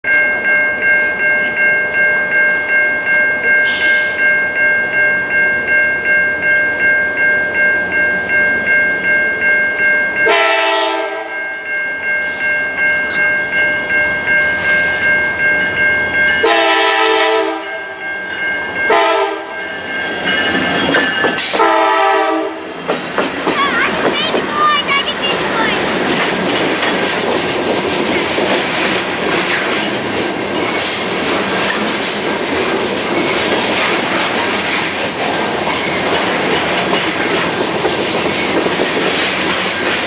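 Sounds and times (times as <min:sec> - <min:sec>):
pulsing ringing tone: 0:00.1 - 0:10.6, 0:11.2 - 0:16.7
locomotive air horn: 0:10.2 - 0:11.4, 0:16.4 - 0:17.8, 0:18.9 - 0:19.5, 0:21.6 - 0:22.7.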